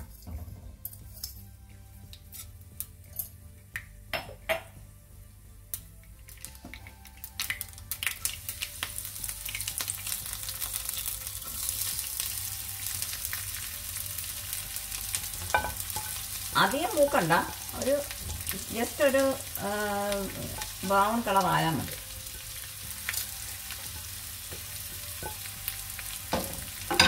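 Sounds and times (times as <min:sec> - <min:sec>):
mustard seeds popping in oil: 0:05.7 - 0:12.4
vegetables sizzling in oil: 0:07.3 - 0:27.0.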